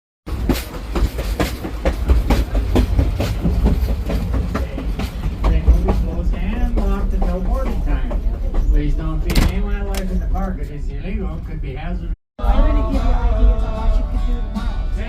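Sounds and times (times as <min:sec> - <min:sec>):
wheels clicking over rail joints: 0:00.3 - 0:10.5
train low rumble: 0:00.3 - 0:15.0.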